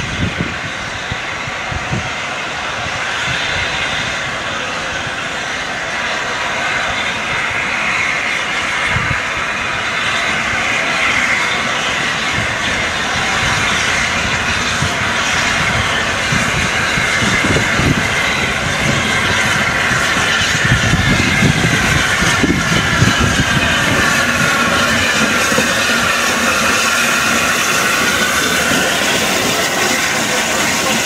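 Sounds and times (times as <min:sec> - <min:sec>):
high wheel squeal: 0:00.0 - 0:31.0
train wheels rumbling on rails: 0:00.0 - 0:31.0.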